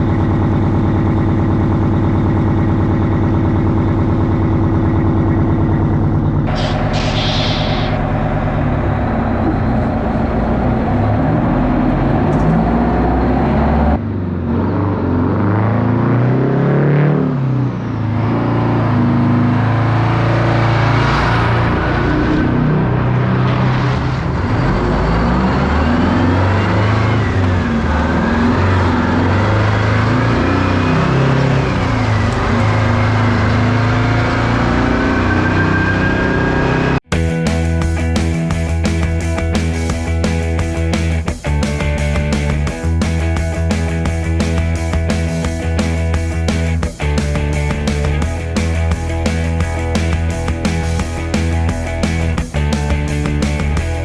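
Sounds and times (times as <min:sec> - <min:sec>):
excavator diesel engine revving: 0:00.0 - 0:54.0
thin rising whine: 0:06.5 - 0:13.7.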